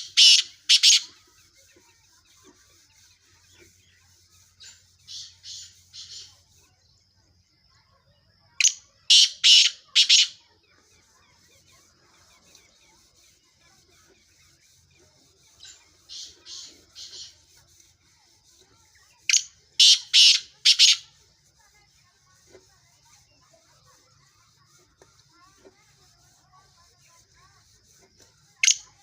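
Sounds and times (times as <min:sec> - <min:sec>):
francolin harsh grating call: 0:00.0 - 0:01.2, 0:08.6 - 0:10.4, 0:15.6 - 0:17.8, 0:19.3 - 0:21.2.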